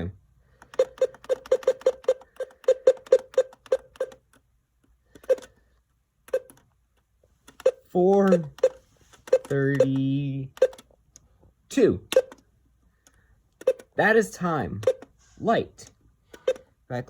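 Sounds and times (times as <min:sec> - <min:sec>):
short electronic beeps: 0:00.8 - 0:04.2, 0:07.6 - 0:10.8, 0:12.1 - 0:12.4.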